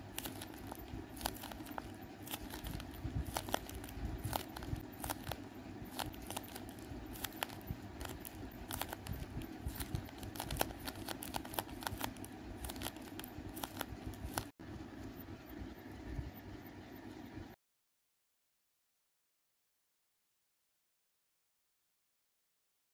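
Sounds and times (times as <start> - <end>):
paper squishy crinkling: 0.0 - 14.5.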